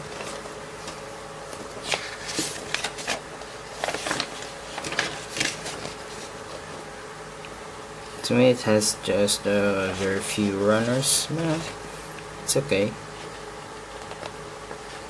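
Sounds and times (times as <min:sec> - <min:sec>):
packaging rustling and crinkling: 0:00.0 - 0:06.9
steady background hum: 0:00.0 - 0:15.0.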